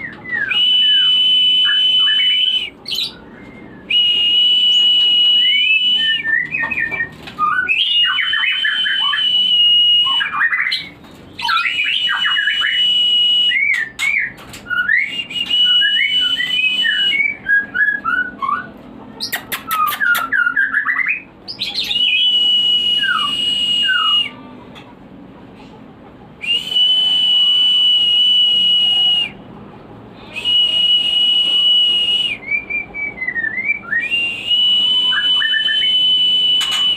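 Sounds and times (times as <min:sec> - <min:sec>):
bird song whistling and chattering: 0:00.0 - 0:24.4, 0:30.3 - 0:36.9
long steady high whistle: 0:03.9 - 0:06.2, 0:08.1 - 0:10.3, 0:11.6 - 0:13.7, 0:22.0 - 0:24.4, 0:26.4 - 0:29.4, 0:30.3 - 0:32.4, 0:33.5 - 0:36.9.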